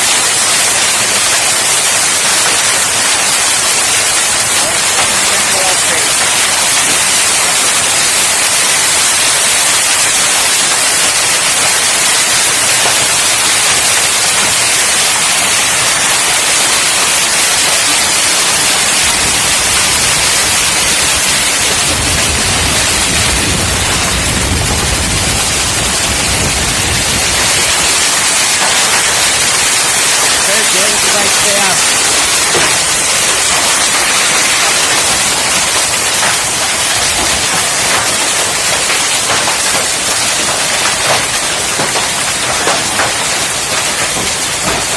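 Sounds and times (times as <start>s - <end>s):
heavy rain and hail: 0.0s - 44.9s
low rumble: 18.6s - 28.0s.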